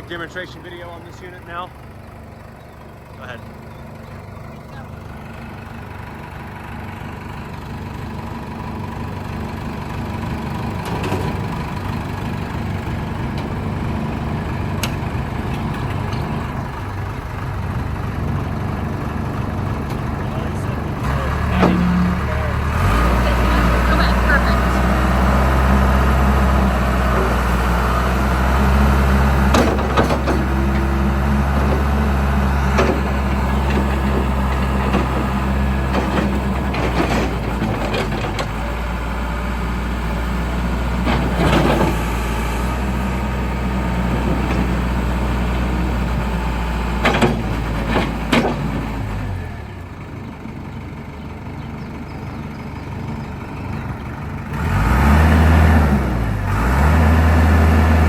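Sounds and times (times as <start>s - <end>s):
diesel engine running: 0.0s - 58.0s
knocks and clunks: 10.4s - 39.3s, 40.2s - 43.0s, 43.6s - 49.4s.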